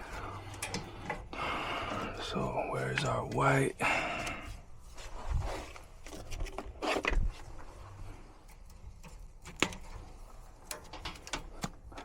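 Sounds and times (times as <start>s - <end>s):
rustle of handling: 4.3s - 12.0s.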